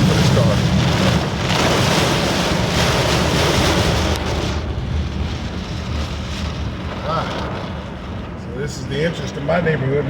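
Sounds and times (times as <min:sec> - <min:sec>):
low road rumble: 0:00.0 - 0:10.0.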